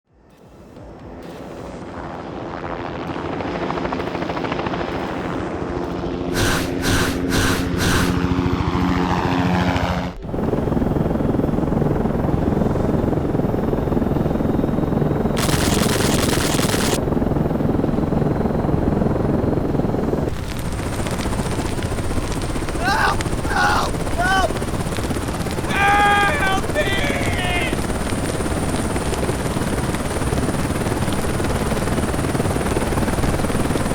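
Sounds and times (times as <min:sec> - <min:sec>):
cartoon helicopter engine and rotor: 0:00.1 - 0:33.9
short sharp sounds: 0:06.3 - 0:08.2.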